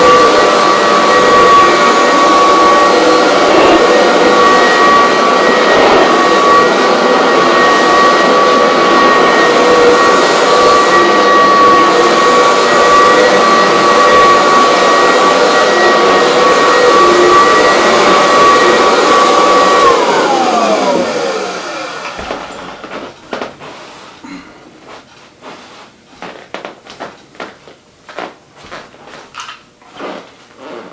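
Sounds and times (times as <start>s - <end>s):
vacuum motor spinning down: 0.0s - 23.1s
vacuum cleaner running: 0.0s - 30.9s.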